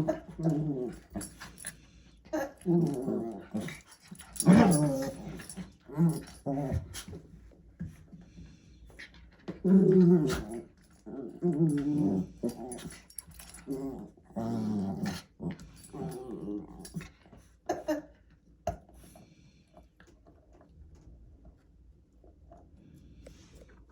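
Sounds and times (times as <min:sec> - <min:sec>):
puppy growling and whimpering: 0:00.0 - 0:01.6, 0:02.3 - 0:06.9, 0:09.6 - 0:17.1.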